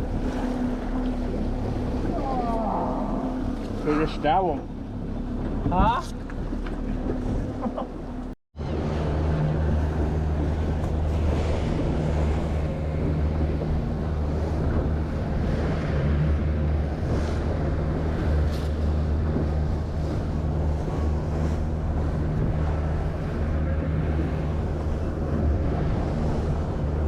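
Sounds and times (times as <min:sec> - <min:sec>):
boat engine humming: 0:00.0 - 0:27.0
rushing water: 0:00.0 - 0:27.0
wind on microphone: 0:08.6 - 0:27.0.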